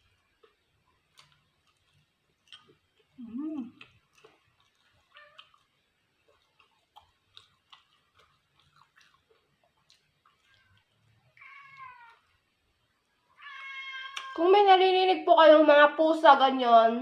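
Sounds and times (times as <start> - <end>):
cat meowing: 5.1 - 5.5, 11.3 - 12.3, 13.4 - 14.4.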